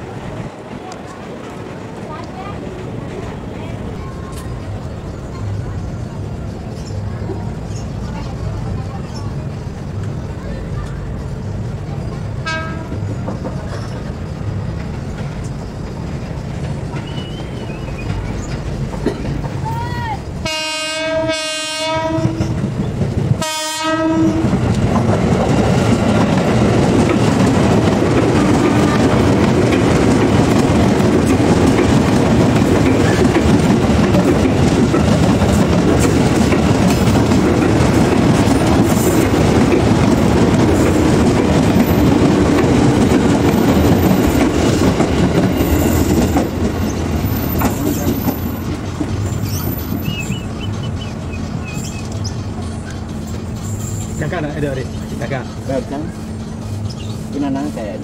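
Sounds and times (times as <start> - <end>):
train wheels on rails: 0.0 - 58.0
electric train horn: 20.4 - 22.6, 23.4 - 24.6.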